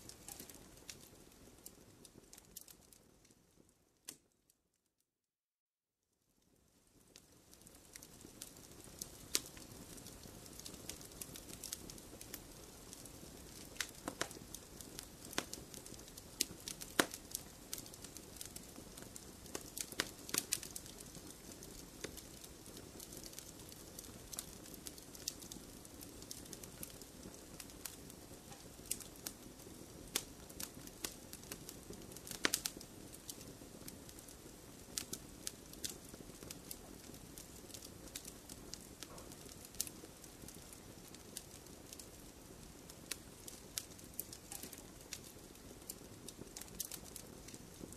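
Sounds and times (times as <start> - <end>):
wood fire crackling: 0.0 - 4.4, 6.4 - 47.9.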